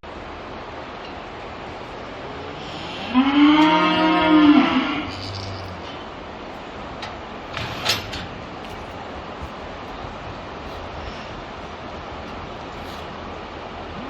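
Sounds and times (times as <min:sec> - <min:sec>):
cow mooing: 0:02.2 - 0:06.0.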